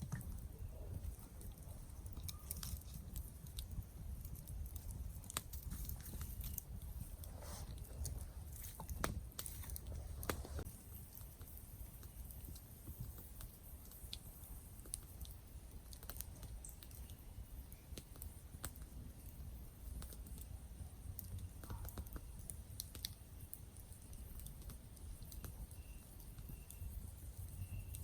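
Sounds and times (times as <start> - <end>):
campfire crackling: 0.0 - 28.0
faint high chirps: 25.4 - 28.0.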